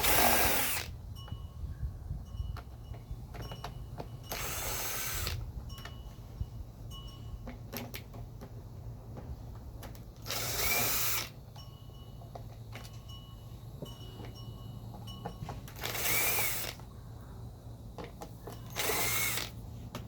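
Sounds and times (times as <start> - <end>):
power drill spinning: 0.0 - 0.9, 4.3 - 5.4, 10.2 - 11.3, 15.7 - 16.8, 18.7 - 19.6.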